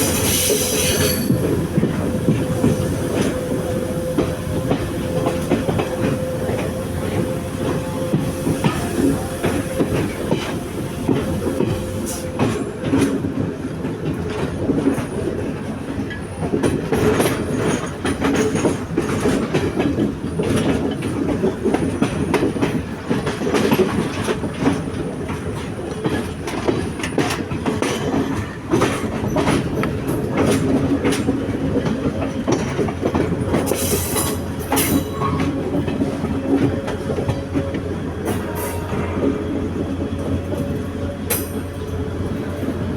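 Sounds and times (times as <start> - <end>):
wheels screeching on rail: 0.0 - 13.5, 25.6 - 42.9
train rumble: 0.0 - 42.9
wheels clacking over rail joints: 0.0 - 42.9.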